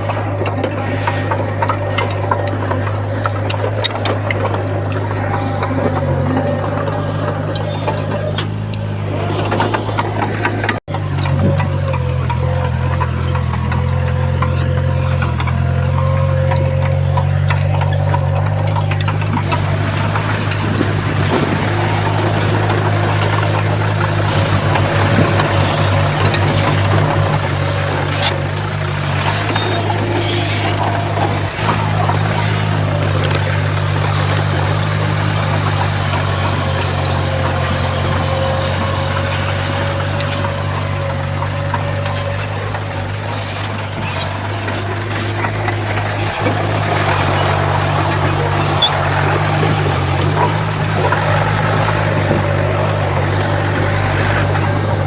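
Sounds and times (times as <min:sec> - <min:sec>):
heavy diesel engine rumbling: 0:00.0 - 0:55.0
rough grinding noise: 0:00.0 - 0:55.0.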